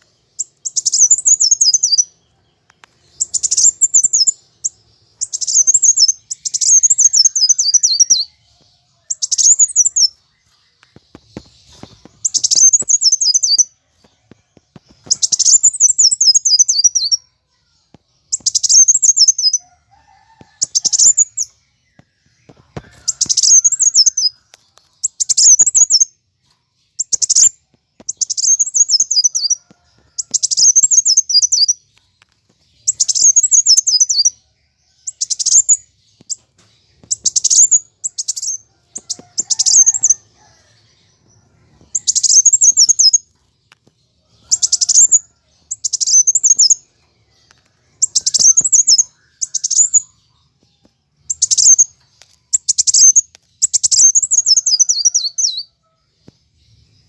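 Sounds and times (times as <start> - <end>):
sunbird down-sweeping chirp trills: 0.0 - 13.8, 18.3 - 26.2, 32.8 - 43.3, 44.4 - 50.4, 51.2 - 56.0.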